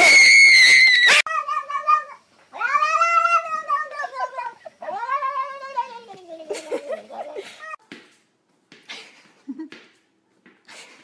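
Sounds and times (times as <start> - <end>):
cat yowling: 0.2 - 7.8
cat meowing: 1.1 - 6.2.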